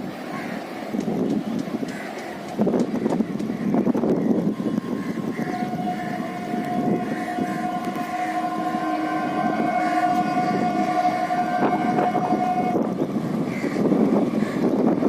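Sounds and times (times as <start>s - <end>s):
train rumble: 0.0s - 15.0s
train horn: 4.4s - 14.4s.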